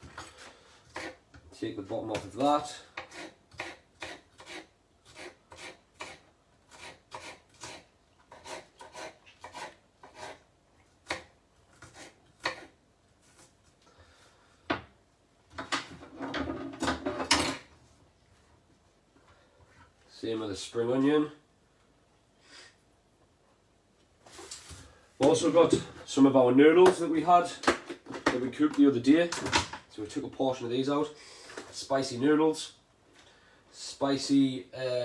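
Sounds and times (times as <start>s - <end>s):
knife chopping on cutting board: 0.9s - 1.2s, 11.0s - 12.7s.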